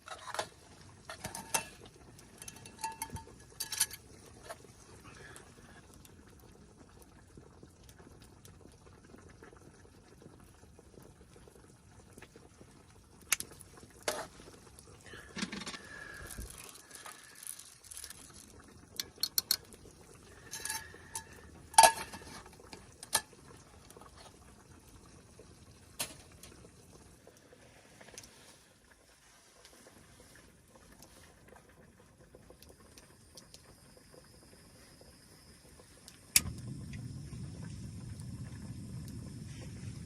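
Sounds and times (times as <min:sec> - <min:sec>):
metal cookware clinking and scraping: 0:00.0 - 0:04.6, 0:19.0 - 0:19.7, 0:20.3 - 0:23.4
faint steady hiss: 0:10.3 - 0:40.0.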